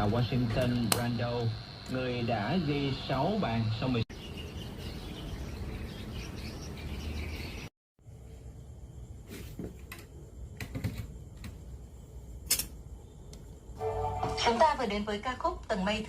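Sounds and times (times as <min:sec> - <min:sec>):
radio static hiss: 0:00.0 - 0:04.0
chirping interference: 0:01.0 - 0:07.7.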